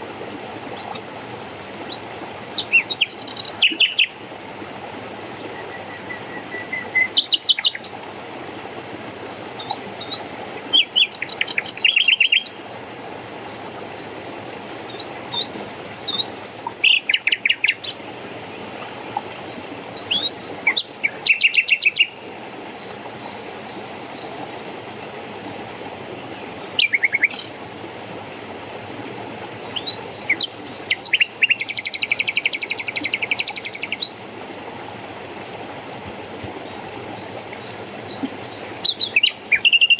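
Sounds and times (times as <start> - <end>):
running water: 0.0 - 39.9
songbirds chirping: 0.7 - 12.9, 14.7 - 22.4, 29.6 - 34.2, 36.4 - 39.9.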